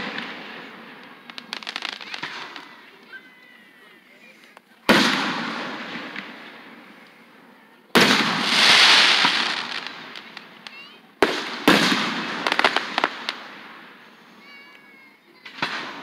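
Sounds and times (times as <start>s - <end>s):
fireworks booming: 0.0s - 3.2s, 4.8s - 7.0s, 7.9s - 14.7s, 15.4s - 16.0s
fireworks crackling: 0.0s - 16.0s.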